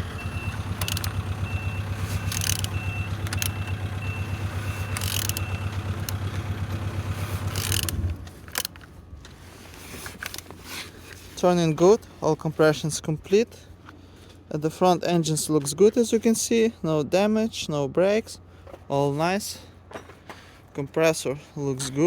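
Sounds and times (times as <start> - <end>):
engine being turned over: 0.3 - 9.0.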